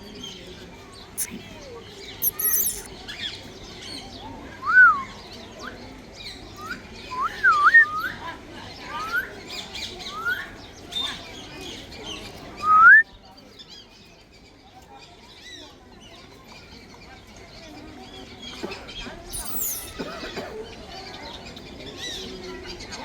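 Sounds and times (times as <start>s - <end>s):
parrot chirping: 2.2s - 2.9s, 19.4s - 20.0s
parrot whistling: 19.4s - 20.0s.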